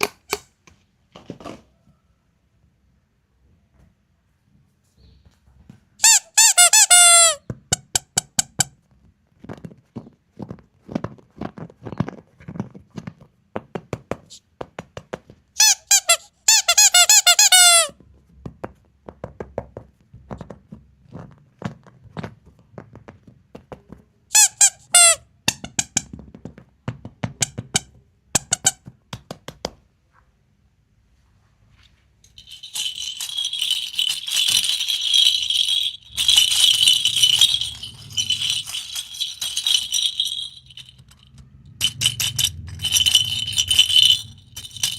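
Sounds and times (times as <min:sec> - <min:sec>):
high rattling and crinkling: 0:31.7 - 0:44.9
high squeaking: 0:32.4 - 0:44.9.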